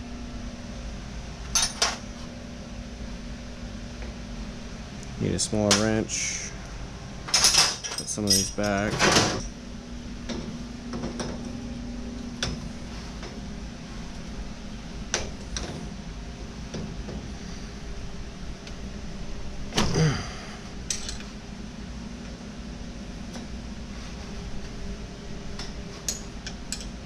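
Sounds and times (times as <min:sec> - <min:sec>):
low steady hum: 0:00.0 - 0:27.0
hand wrenches clinking: 0:07.3 - 0:09.5, 0:20.9 - 0:21.2, 0:26.0 - 0:27.0
wrenches clattering: 0:07.3 - 0:09.5, 0:20.9 - 0:21.3, 0:26.0 - 0:27.0.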